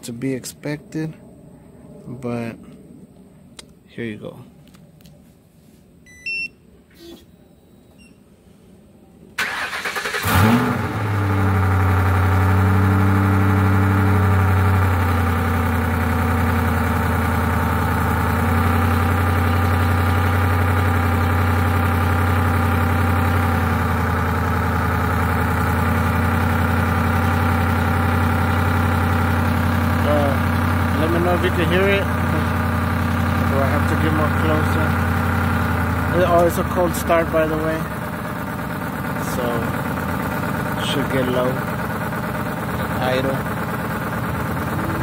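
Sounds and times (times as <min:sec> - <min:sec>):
starter motor cranking: 0:09.4 - 0:11.5
car engine revving and idling: 0:09.7 - 0:45.0.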